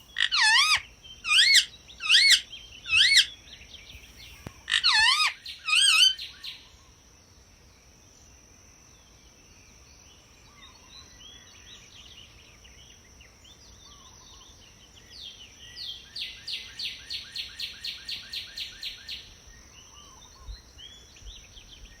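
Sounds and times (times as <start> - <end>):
parakeet calling: 0.0 - 3.3, 4.2 - 6.2.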